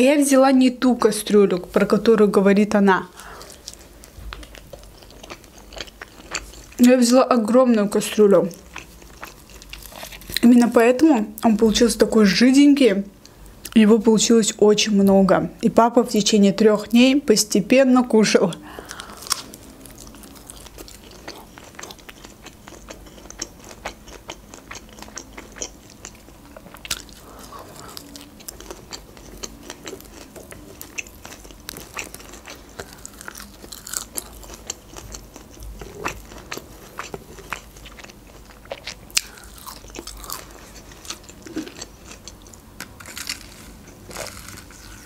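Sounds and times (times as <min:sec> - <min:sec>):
person biting and chewing: 0:08.6 - 0:10.4, 0:18.9 - 0:45.0.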